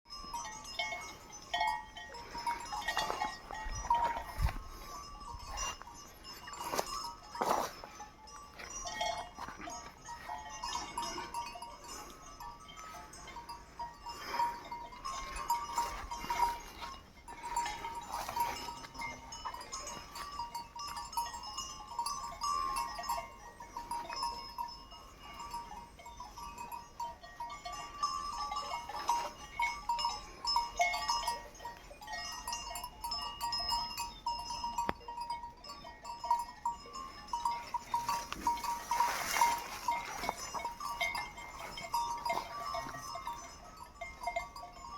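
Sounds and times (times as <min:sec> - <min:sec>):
sheep bells clinking: 0:00.1 - 0:44.9.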